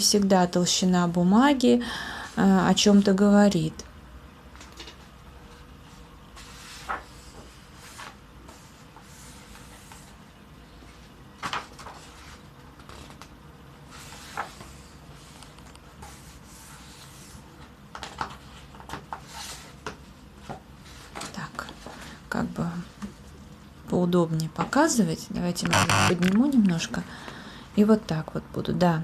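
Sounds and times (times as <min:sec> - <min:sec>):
paper pages turning: 0:06.4 - 0:10.2, 0:11.4 - 0:19.8.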